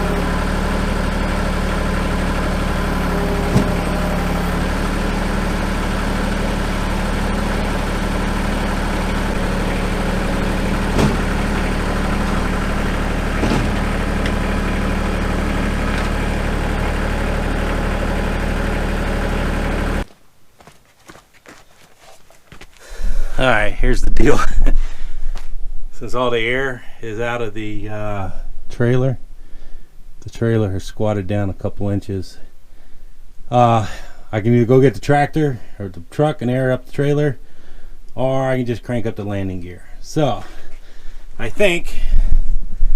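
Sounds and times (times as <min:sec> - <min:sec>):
tractor engine idling: 0:00.0 - 0:20.1
light engine knocks: 0:03.3 - 0:04.0, 0:10.8 - 0:14.5.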